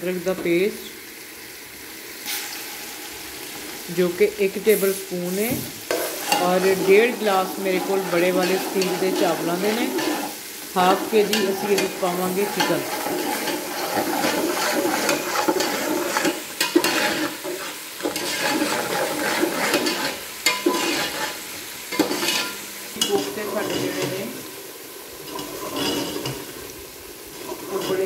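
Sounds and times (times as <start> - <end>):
chicken sizzling in hot oil: 0.0 - 28.0
metal ladle scraping pot: 5.9 - 24.2, 25.2 - 26.7, 27.3 - 28.0.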